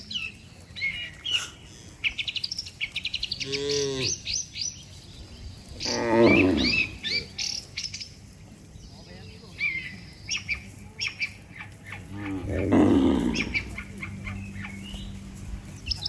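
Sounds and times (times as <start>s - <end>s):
small birds chirping: 0.0s - 16.0s
cattle mooing: 3.4s - 4.3s, 5.8s - 7.3s, 11.8s - 16.0s.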